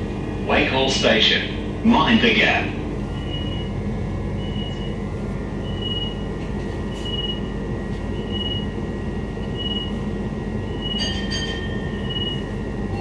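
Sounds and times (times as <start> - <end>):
train low hum: 0.0 - 13.0.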